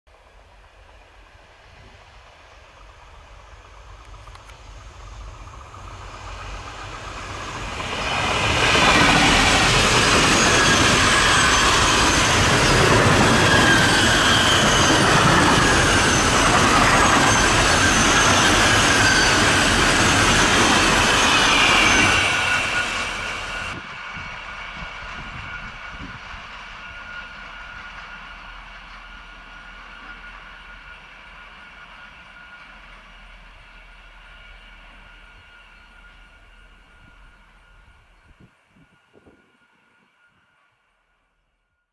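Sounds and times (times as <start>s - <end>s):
freight train passing: 0.1s - 41.9s
high-pitched wheel squeal: 7.2s - 23.8s.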